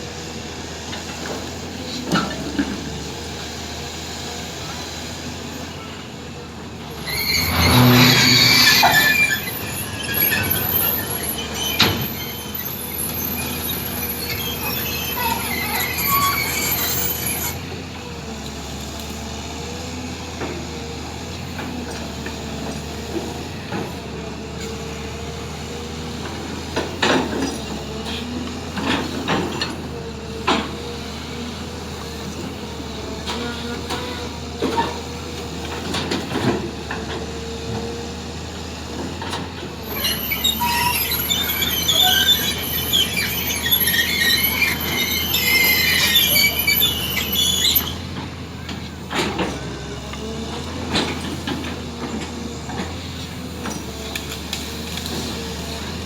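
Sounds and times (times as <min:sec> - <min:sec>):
heavy machinery running: 0:00.0 - 0:56.0
high metal-on-metal squealing: 0:06.9 - 0:17.6, 0:39.8 - 0:48.1.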